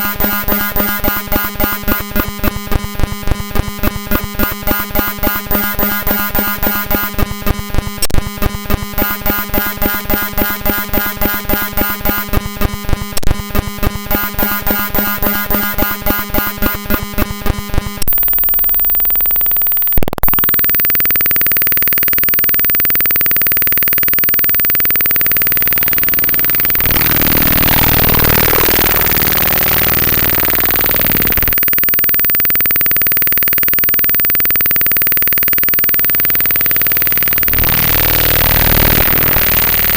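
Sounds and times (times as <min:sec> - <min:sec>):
harsh pulsing digital buzz: 0:00.0 - 0:39.9.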